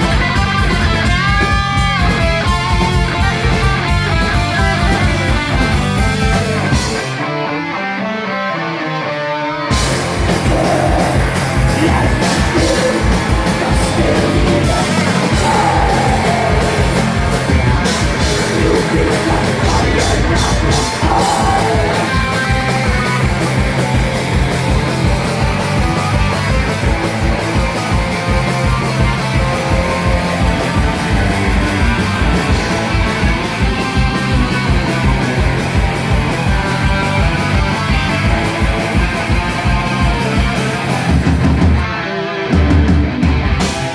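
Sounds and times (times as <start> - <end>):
heavy rock band playing: 0.0 - 8.4, 9.6 - 43.9
person yelling vocals: 10.3 - 22.6.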